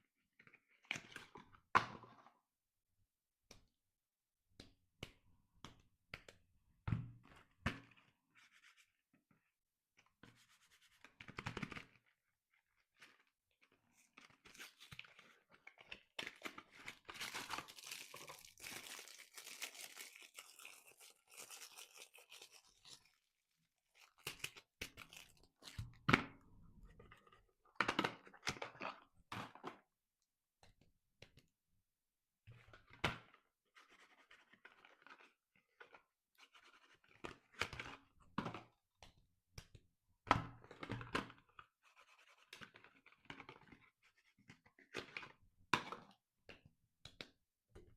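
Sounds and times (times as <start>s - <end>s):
wrapper tearing and crinkling: 17.0s - 23.2s.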